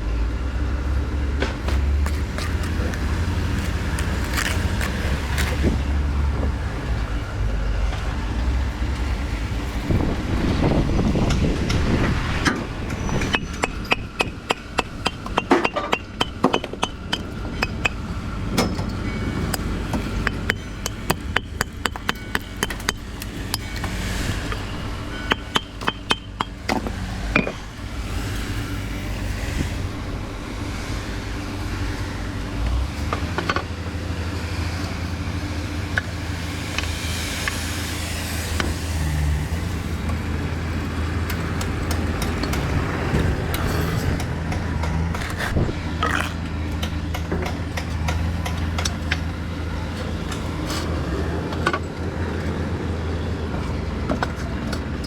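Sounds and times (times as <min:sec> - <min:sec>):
low engine hum: 0:00.0 - 0:55.0
sharp hammering knocks: 0:12.8 - 0:27.6.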